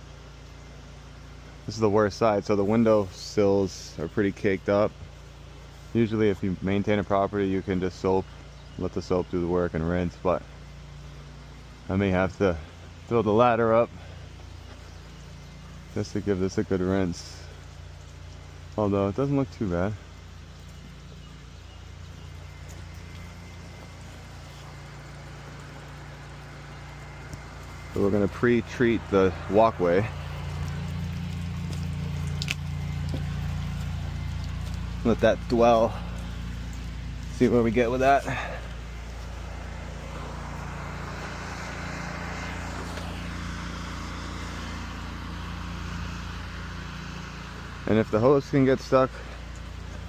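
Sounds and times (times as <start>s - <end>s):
pressure washer engine hum: 0.0s - 50.0s
water spraying hiss: 13.8s - 50.0s.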